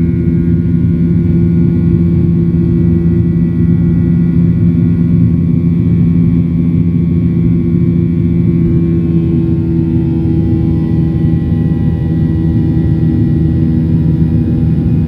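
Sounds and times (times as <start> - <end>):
jet engines droning: 0.0 - 15.0.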